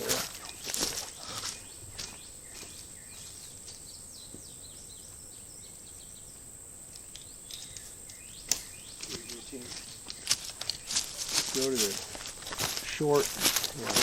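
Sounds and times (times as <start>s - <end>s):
small birds chirping: 0.0s - 14.0s
light clicks and rustles: 6.9s - 14.0s.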